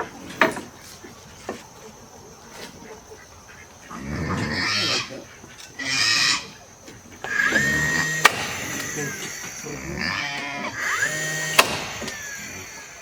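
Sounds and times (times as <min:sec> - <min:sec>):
pigs grunting and squealing: 0:03.0 - 0:13.0
cordless drill spinning: 0:07.0 - 0:13.0
sharp click: 0:07.2 - 0:09.6, 0:11.0 - 0:12.4.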